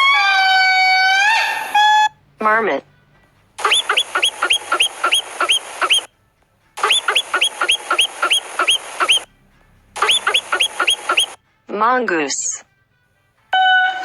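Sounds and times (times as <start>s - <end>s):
marmot alarm whistles: 3.6s - 6.1s, 6.8s - 9.3s, 10.0s - 11.4s.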